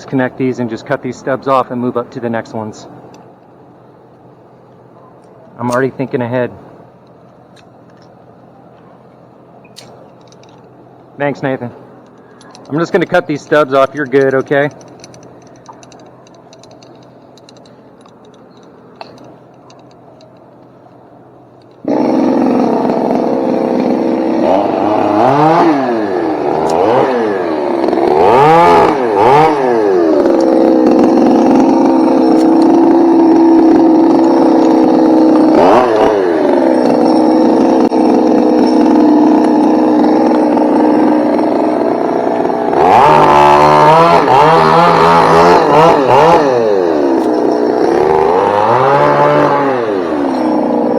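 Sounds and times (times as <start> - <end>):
chainsaw revving and cutting: 21.8 - 50.9.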